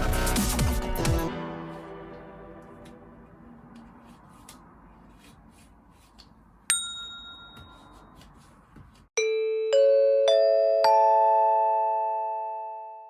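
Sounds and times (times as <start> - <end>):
bright ding: 6.7 - 8.1.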